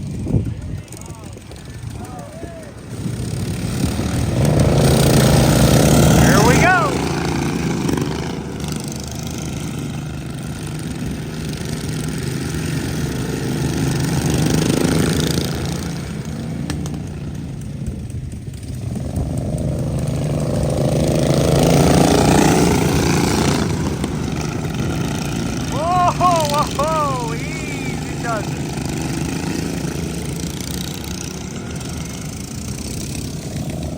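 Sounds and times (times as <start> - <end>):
lawn mower engines racing: 0.0 - 33.9.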